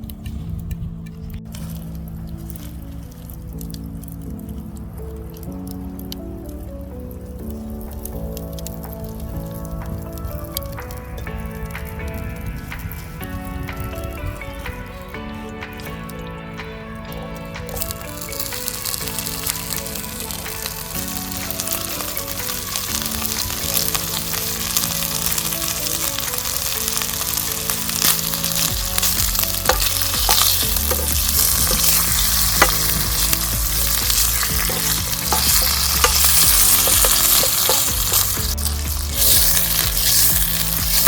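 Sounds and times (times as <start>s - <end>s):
quiet background music: 0.0s - 41.0s
food sizzling in a frying pan: 17.7s - 41.0s
utensil clicking against pan: 22.4s - 41.0s.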